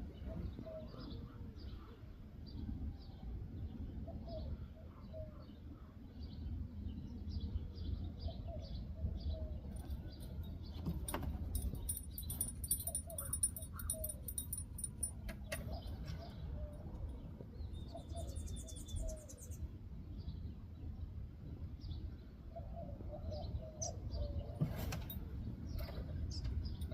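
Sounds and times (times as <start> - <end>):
small birds chirping: 4.1 - 21.1, 25.4 - 26.9.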